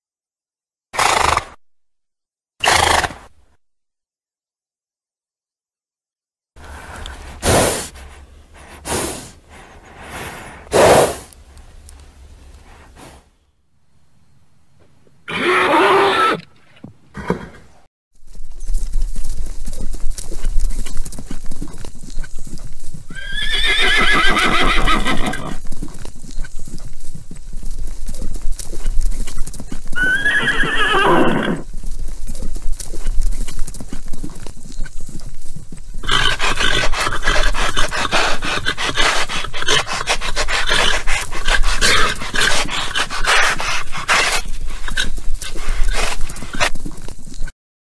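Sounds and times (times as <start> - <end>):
horses neighing: 15.2 - 16.5, 23.1 - 25.7, 29.8 - 31.7, 36.0 - 46.6
clip-clopping hooves: 18.2 - 47.5.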